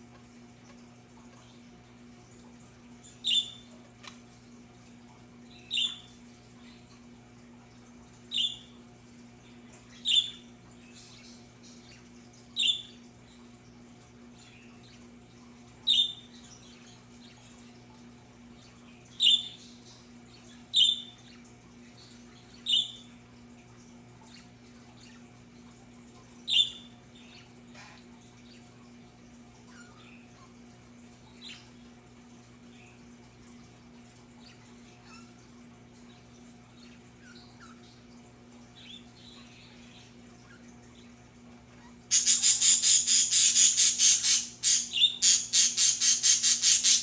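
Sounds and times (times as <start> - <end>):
budgerigar squawking: 42.1 - 47.0.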